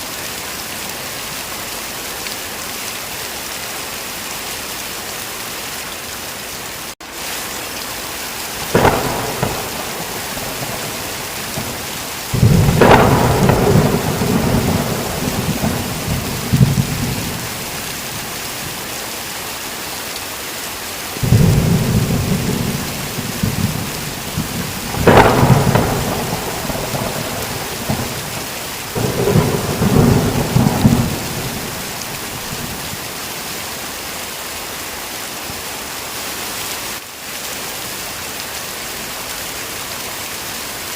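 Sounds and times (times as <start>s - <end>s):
heavy rain: 0.0s - 40.9s
thunder cracks and rolls: 8.6s - 18.4s, 21.2s - 33.1s.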